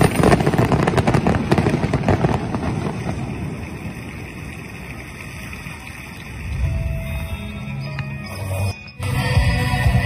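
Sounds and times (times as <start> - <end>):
fireworks bangs and crackles: 0.0 - 6.6.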